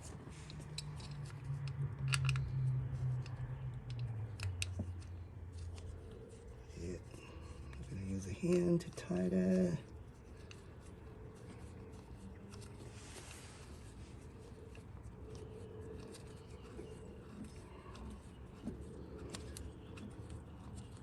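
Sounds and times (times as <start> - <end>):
bolt scratching and clicking: 0.0 - 12.9
low hum: 0.0 - 21.0.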